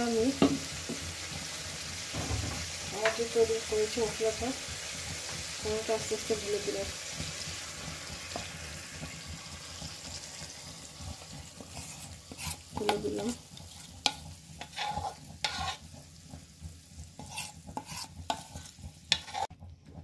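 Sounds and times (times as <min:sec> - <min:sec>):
chicken sizzling in pot: 0:00.0 - 0:20.0
spoon scraping bowl: 0:11.6 - 0:16.0, 0:17.2 - 0:19.5.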